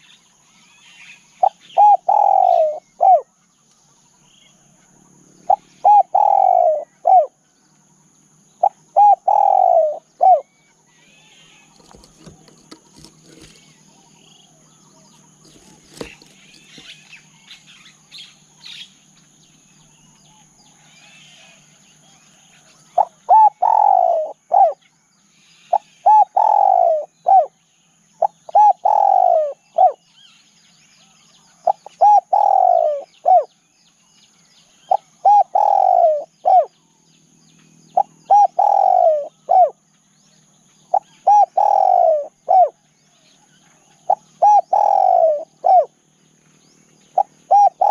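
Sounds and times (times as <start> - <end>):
small birds chirping: 0.0 - 47.9
dove cooing: 1.4 - 3.3, 5.5 - 7.4, 8.6 - 10.5, 11.2 - 13.8, 15.3 - 17.2, 23.0 - 24.8, 25.7 - 27.6, 28.2 - 30.0, 31.7 - 33.5, 34.9 - 36.7, 38.0 - 39.8, 40.9 - 42.8, 44.1 - 45.9, 47.2 - 47.9.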